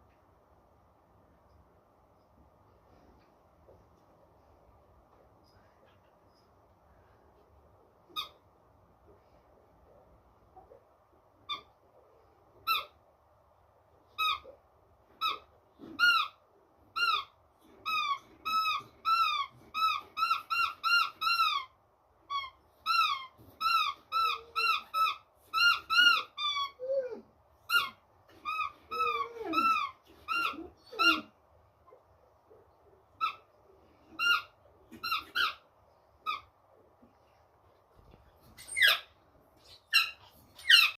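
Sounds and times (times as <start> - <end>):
squeaky toy squeaks: 8.1 - 8.4, 11.5 - 11.8, 12.6 - 13.0, 14.1 - 14.6, 15.2 - 31.3, 33.2 - 36.5, 38.4 - 41.0.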